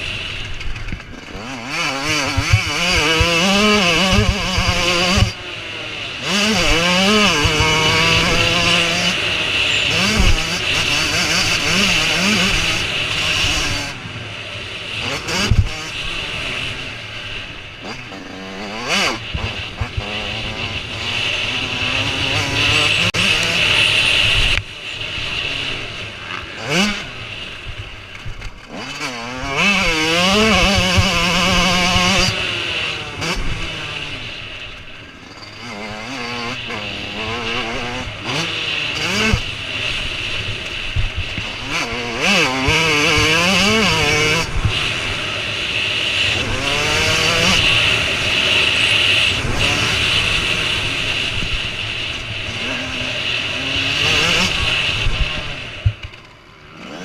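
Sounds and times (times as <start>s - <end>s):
bikes passing close: 0.0s - 57.0s
motocross bike engines revving: 0.0s - 57.0s.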